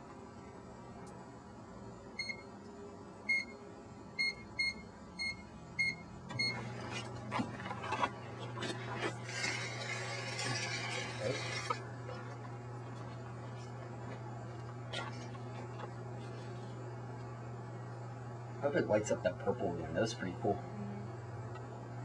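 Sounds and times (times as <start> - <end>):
microwave oven humming: 0.0 - 22.0
microwave keypad beeping: 2.2 - 2.5, 3.3 - 3.6, 4.2 - 6.7.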